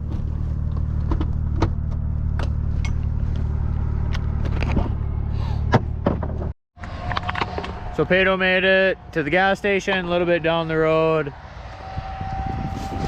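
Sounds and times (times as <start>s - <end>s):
car engine idling: 0.0s - 6.2s.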